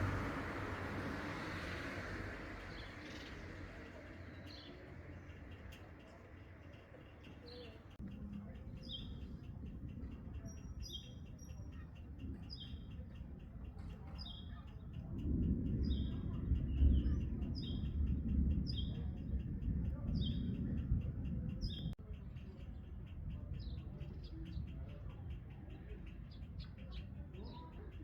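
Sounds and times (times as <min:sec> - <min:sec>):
low rumble: 0:14.9 - 0:22.1.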